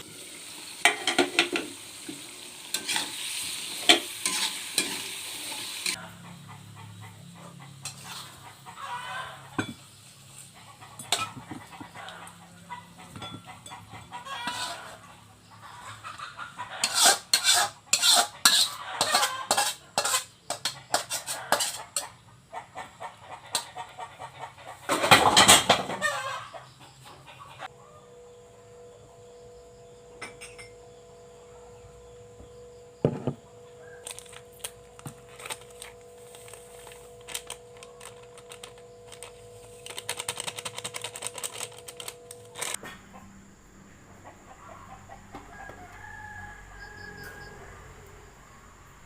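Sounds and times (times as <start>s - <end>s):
rooster crowing: 7.4s - 9.8s, 11.1s - 15.1s, 31.4s - 38.2s, 44.5s - 48.6s
rapid clicking and clattering: 37.2s - 42.8s.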